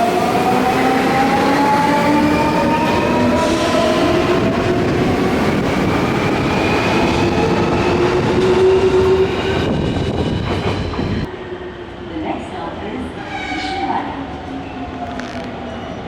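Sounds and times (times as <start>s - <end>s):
train wheels rumbling on rails: 0.3s - 11.4s, 14.9s - 16.0s.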